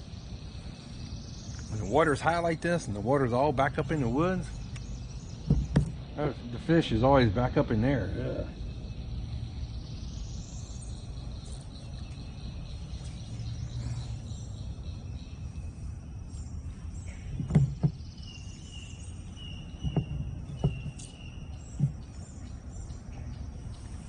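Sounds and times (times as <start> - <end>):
insects chirping and buzzing: 0.0 - 24.0
sharp knocks: 5.4 - 6.0, 17.4 - 18.1, 19.8 - 21.1.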